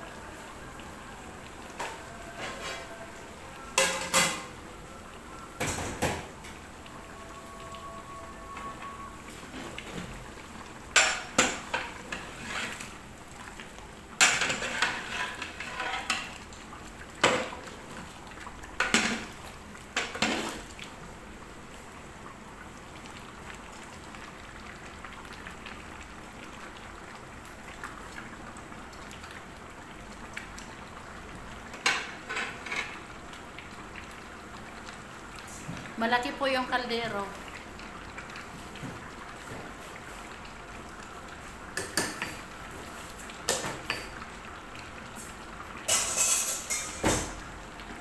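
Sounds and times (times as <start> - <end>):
metal utensil scraping cooking pot: 1.8 - 3.1, 11.0 - 13.0, 14.2 - 16.3.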